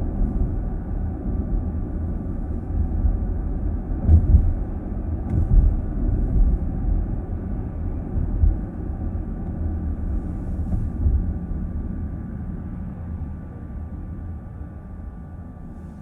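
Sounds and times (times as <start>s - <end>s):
car road and tyre rumble: 0.0s - 16.0s
low thumps: 4.0s - 6.6s, 10.4s - 11.3s.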